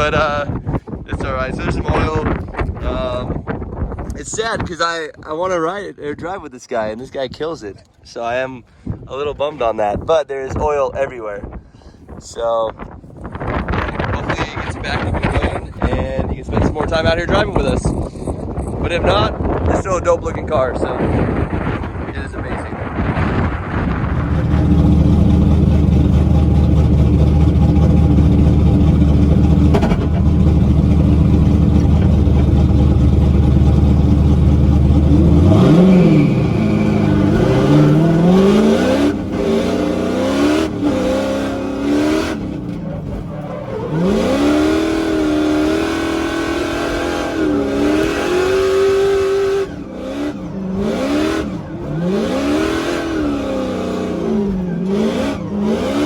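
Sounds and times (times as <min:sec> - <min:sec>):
car engine revving: 0:22.9 - 0:56.0.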